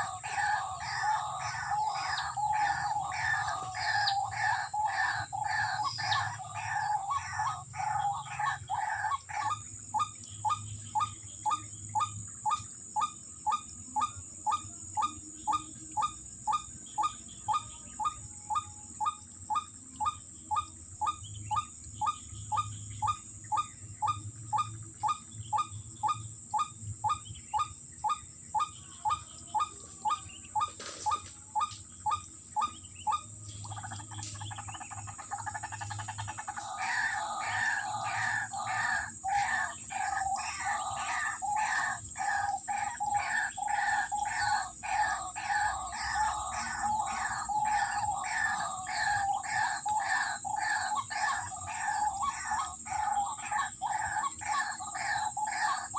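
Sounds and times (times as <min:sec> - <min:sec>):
waterhen calling: 0:00.0 - 0:09.6, 0:28.6 - 0:55.9.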